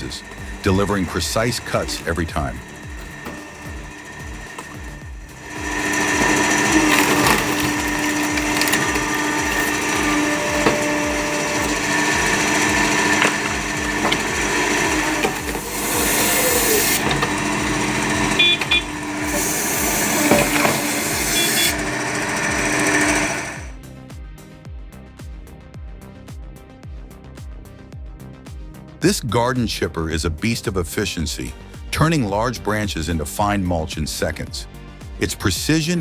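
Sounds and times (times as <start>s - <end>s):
machine humming: 0.0s - 23.8s
background music with beat: 0.0s - 36.0s.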